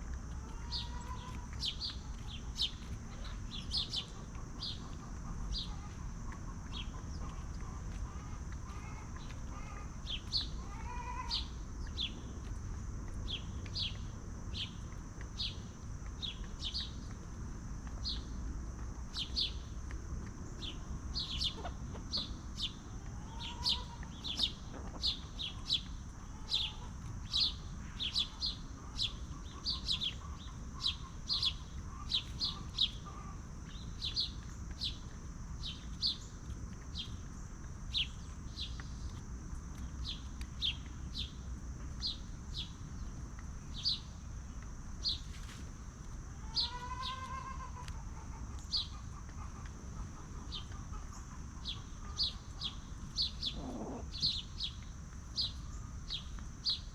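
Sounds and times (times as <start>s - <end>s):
chick chirping: 0.4s - 12.0s, 20.6s - 27.6s, 46.6s - 54.8s.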